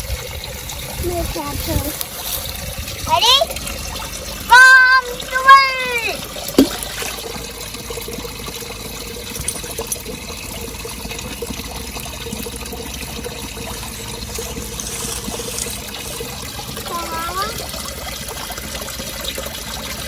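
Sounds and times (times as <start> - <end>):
creek water trickling: 0.0 - 20.0.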